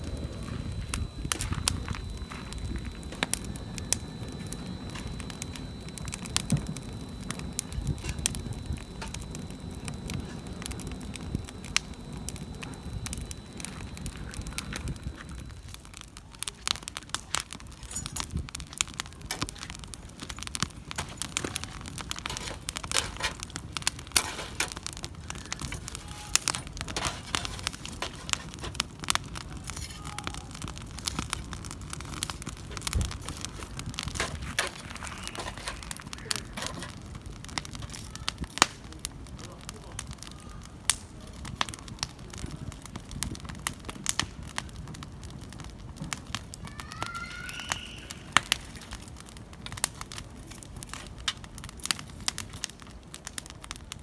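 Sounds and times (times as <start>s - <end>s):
low rumble: 0.0s - 15.7s
firewood crackling and popping: 0.0s - 54.0s.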